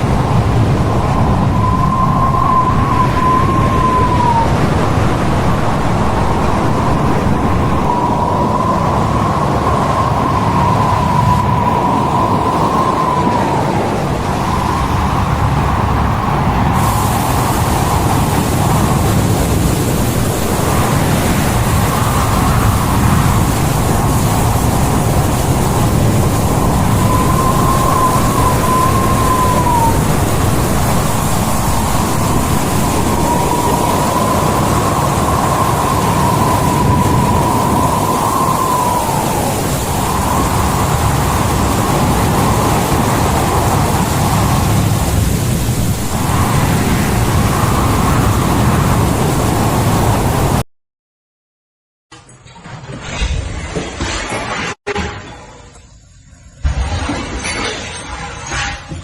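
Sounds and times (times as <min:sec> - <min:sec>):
heavy sea: 0:00.0 - 0:50.6
storm wind: 0:00.0 - 0:50.6
wavering whistle: 0:00.1 - 0:05.0, 0:06.4 - 0:19.1, 0:21.6 - 0:45.1.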